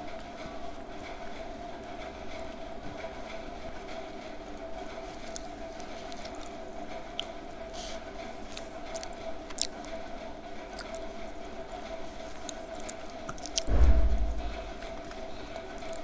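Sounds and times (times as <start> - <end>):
steady electrical hum: 4.4 - 16.0
chewing with soft crunching: 4.8 - 13.7.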